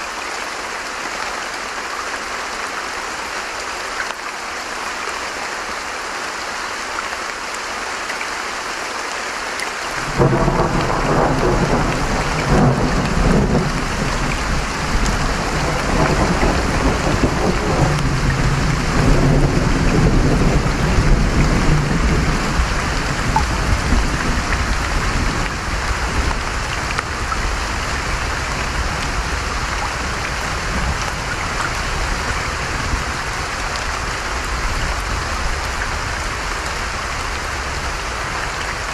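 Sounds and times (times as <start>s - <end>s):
rain hiss: 0.0s - 38.9s
running stream: 0.0s - 38.9s
thunder rumbling: 10.0s - 33.2s.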